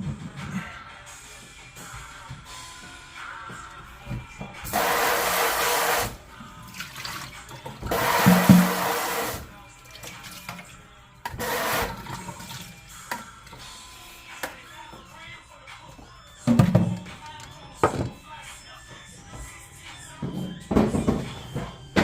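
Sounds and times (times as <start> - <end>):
water running from faucet: 4.7 - 10.6, 11.3 - 12.7.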